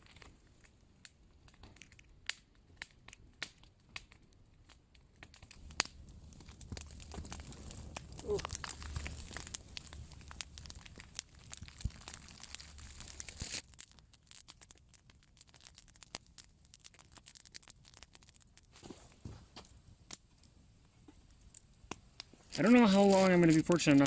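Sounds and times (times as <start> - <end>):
campfire crackling and popping: 0.0 - 24.0
scratchy rustle: 12.0 - 13.6.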